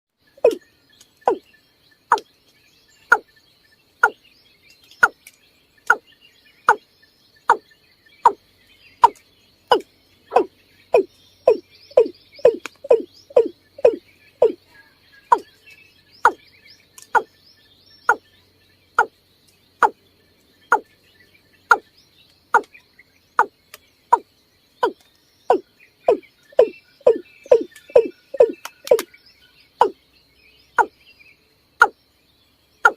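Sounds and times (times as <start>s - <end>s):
watercock calling: 0.4s - 0.6s, 9.0s - 14.6s, 24.1s - 29.1s.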